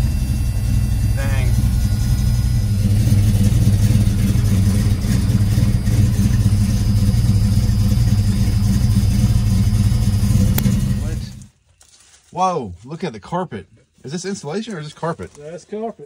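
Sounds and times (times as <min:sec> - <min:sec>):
car engine idling: 0:00.0 - 0:11.5.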